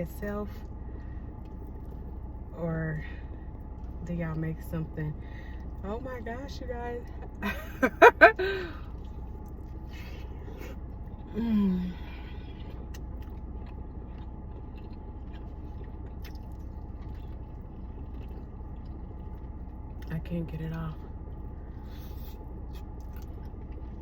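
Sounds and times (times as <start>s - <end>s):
quiet chewing: 0.0s - 7.5s, 8.3s - 24.0s
steady low hum: 0.0s - 24.0s
woman humming: 11.3s - 12.3s.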